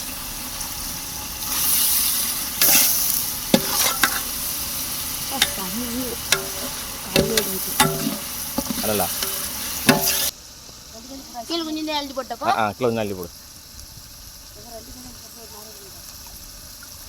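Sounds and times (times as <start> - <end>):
food sizzling in a pot: 0.0 - 17.0
spoon stirring and knocking pot: 3.6 - 4.4, 5.4 - 10.3.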